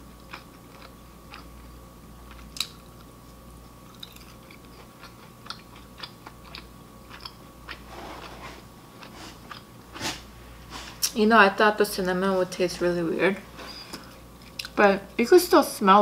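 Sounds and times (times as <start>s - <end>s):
crunchy chewing of fried chicken: 0.0s - 11.0s.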